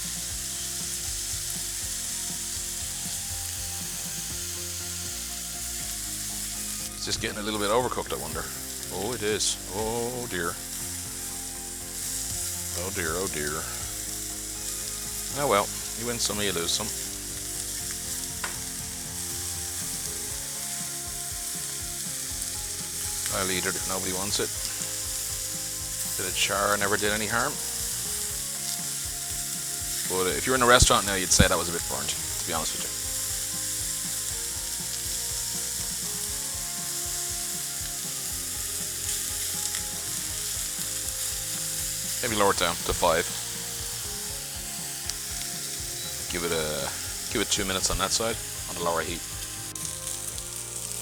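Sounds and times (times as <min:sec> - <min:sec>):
chicken sizzling in a pan: 0:00.0 - 0:51.0.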